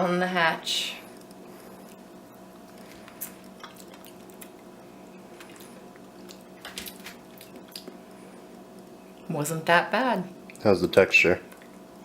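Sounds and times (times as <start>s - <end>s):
steady low hum: 0.0s - 12.0s
soft crunches of chewing: 1.0s - 9.2s, 11.4s - 11.9s.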